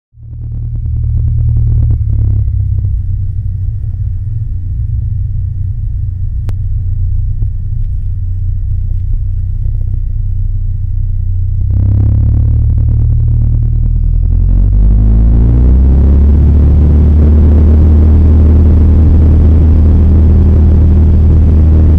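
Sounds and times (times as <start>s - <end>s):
airplane engine droning: 0.2s - 21.9s.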